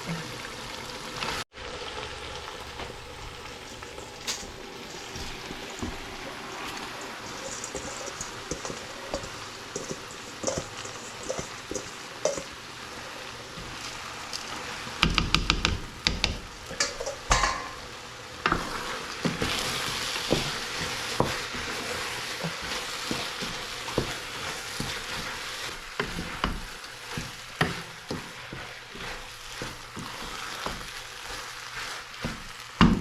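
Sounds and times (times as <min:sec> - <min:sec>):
food sizzling in a pot: 0:00.0 - 0:33.0
spoon knocking against pot: 0:15.0 - 0:17.8
metal ring: 0:16.8 - 0:17.8.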